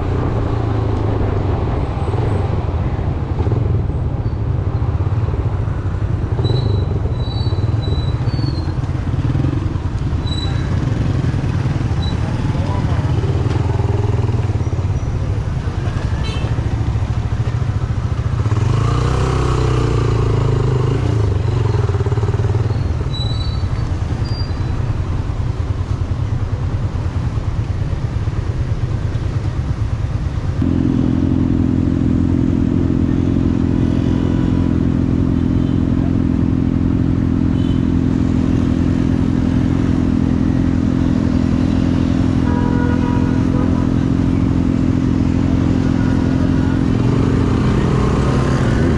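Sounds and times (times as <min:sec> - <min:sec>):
motorcycle engine running: 0:05.0 - 0:23.2, 0:28.8 - 0:48.9.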